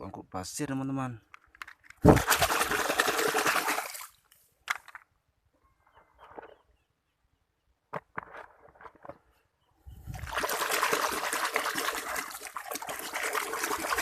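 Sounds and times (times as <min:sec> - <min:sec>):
water splashing: 0:02.0 - 0:04.2, 0:10.1 - 0:14.0.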